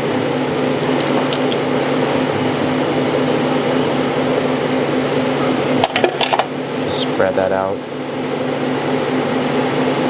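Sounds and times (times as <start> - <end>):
kitchen equipment humming: 0.0 - 8.6
utensils clicking: 0.9 - 1.8.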